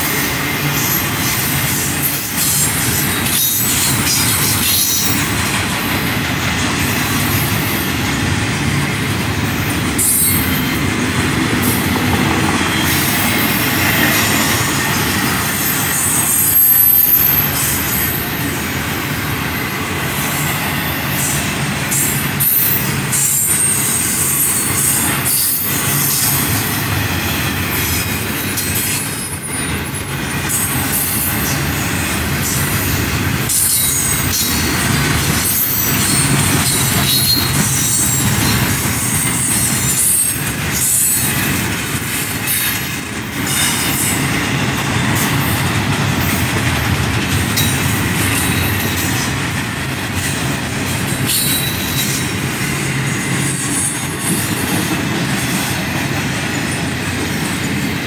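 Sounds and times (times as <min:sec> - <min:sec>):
steel wheels rumbling on rail: 0:00.0 - 0:58.0
high-pitched wheel squeal: 0:12.7 - 0:18.3, 0:35.5 - 0:41.3.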